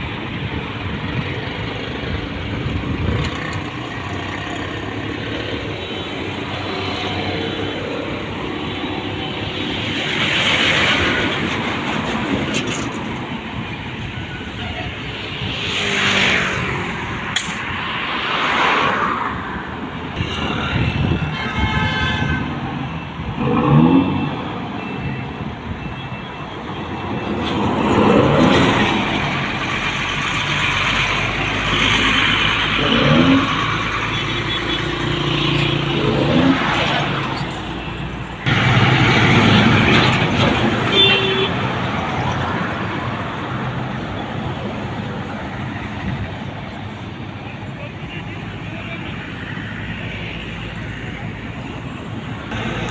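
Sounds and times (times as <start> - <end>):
trucks passing on highway: 0.0 - 52.9
vehicle horns: 20.2 - 22.6, 32.8 - 38.7, 39.4 - 41.6.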